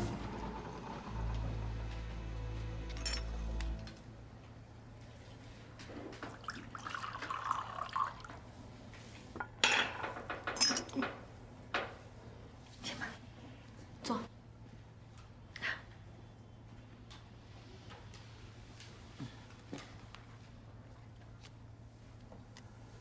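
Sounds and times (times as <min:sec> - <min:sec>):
low background music: 0:00.0 - 0:04.4
liquid being poured: 0:06.2 - 0:08.4
glassware and cups clinking: 0:06.3 - 0:08.1, 0:09.4 - 0:11.2.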